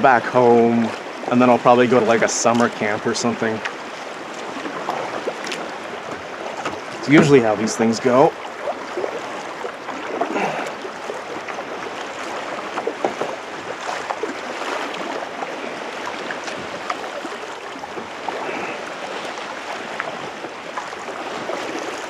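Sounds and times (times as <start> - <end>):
paddle splashing water: 0.0 - 22.0
water sloshing around boat: 0.0 - 22.0.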